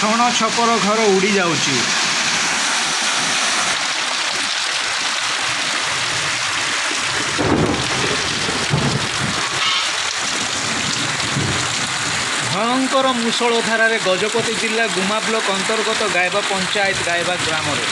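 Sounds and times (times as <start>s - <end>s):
heavy rain pouring: 0.0s - 17.9s
thunder rumbling: 5.8s - 12.6s.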